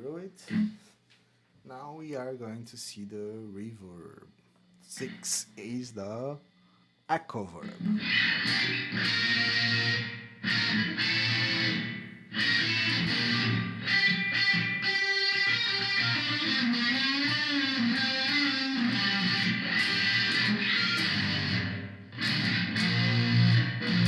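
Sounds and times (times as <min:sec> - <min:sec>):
electric guitar with reverb: 0:07.6 - 0:24.0.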